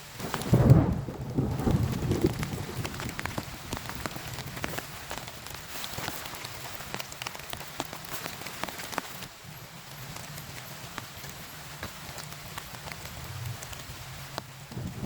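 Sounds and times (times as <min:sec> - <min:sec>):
thunder rumble: 0:00.0 - 0:06.1, 0:12.5 - 0:15.0
heavy rain falling: 0:00.0 - 0:15.0
raindrops tapping a surface: 0:00.0 - 0:15.0.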